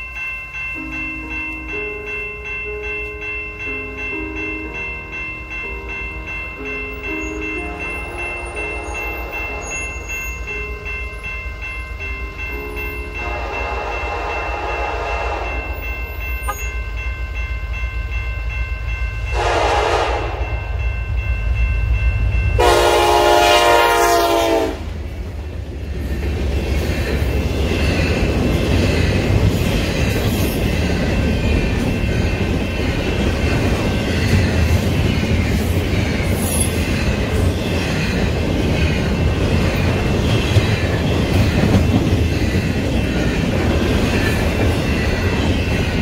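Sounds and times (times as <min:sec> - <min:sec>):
train cars rolling on rails: 0:00.0 - 0:46.0
locomotive horn blasts: 0:13.2 - 0:15.8, 0:19.3 - 0:20.5, 0:22.6 - 0:24.9.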